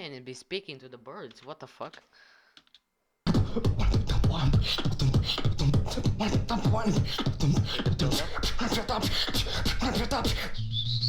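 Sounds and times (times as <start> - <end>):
person beatboxing: 3.3 - 11.0.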